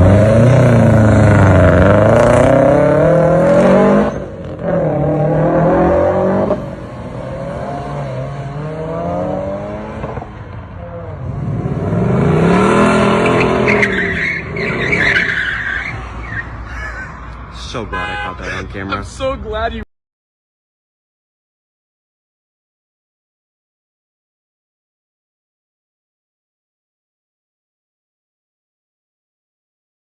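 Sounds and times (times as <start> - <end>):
car engines revving: 0.0 - 19.4.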